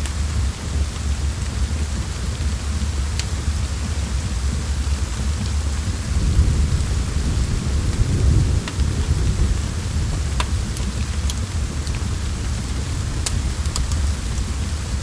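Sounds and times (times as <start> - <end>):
steady rain: 0.0 - 15.0
wood fire crackling: 0.0 - 15.0
thunder rumbling: 0.1 - 15.0.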